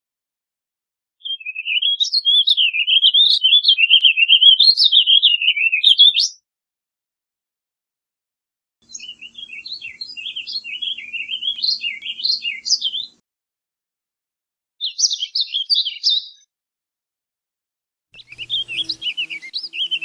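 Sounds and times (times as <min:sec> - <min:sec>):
bird singing warbling song: 0:01.2 - 0:06.4, 0:08.8 - 0:13.2, 0:14.8 - 0:16.5, 0:18.2 - 0:20.0.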